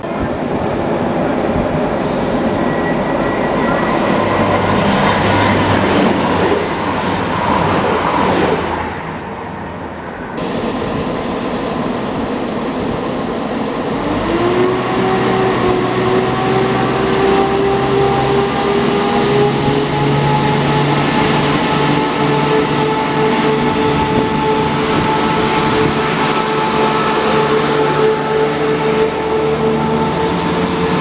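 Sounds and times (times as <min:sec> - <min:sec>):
train rumbling: 0:00.0 - 0:31.0
train motor drone rising: 0:10.4 - 0:31.0.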